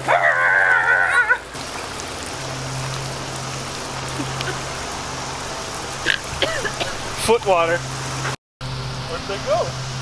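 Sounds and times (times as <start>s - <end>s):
water spraying from jets: 0.0s - 10.0s.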